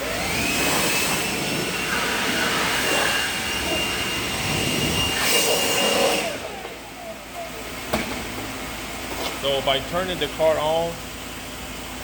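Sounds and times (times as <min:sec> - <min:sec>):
electric air blower whining: 0:00.0 - 0:08.8.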